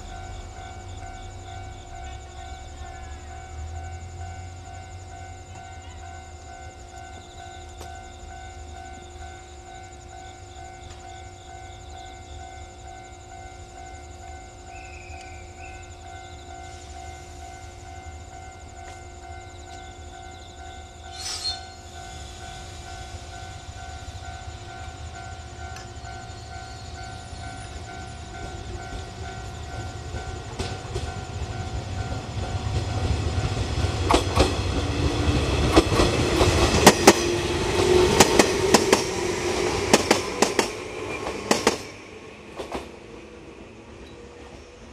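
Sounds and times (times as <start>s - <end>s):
wheels clicking over rail joints: 27.6s - 43.0s.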